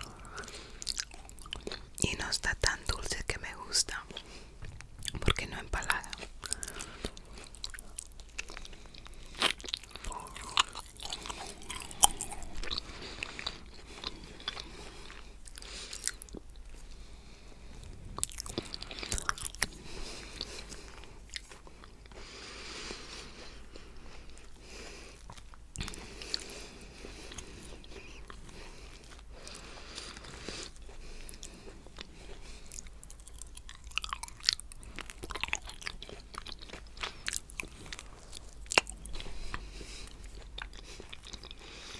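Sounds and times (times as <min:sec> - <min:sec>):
person breathing: 0:00.0 - 0:00.9, 0:06.1 - 0:07.7, 0:08.6 - 0:25.3, 0:25.9 - 0:32.9, 0:37.0 - 0:41.9
person chewing food: 0:00.0 - 0:41.9.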